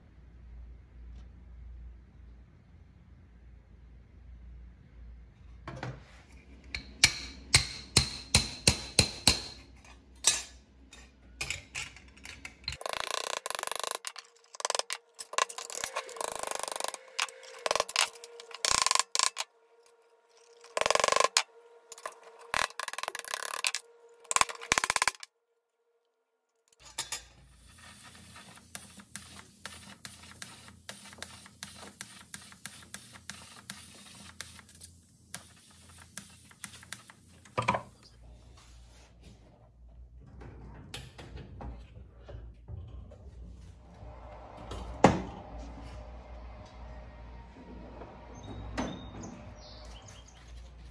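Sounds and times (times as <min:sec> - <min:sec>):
hammer tapping on metal: 0:06.8 - 0:09.6
rasping and scraping on metal: 0:12.3 - 0:25.3.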